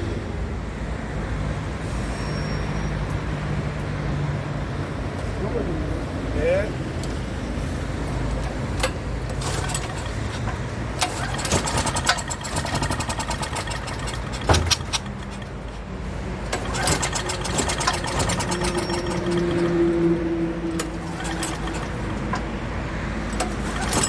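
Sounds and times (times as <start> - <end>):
generator engine rumbling: 4.4 - 24.0
rapid clicking and rattling: 8.4 - 24.0.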